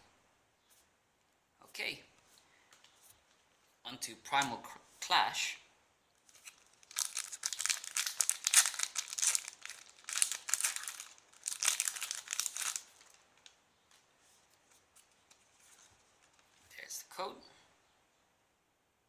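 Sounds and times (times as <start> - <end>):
foil wrapper crinkling and tearing: 6.2 - 13.6.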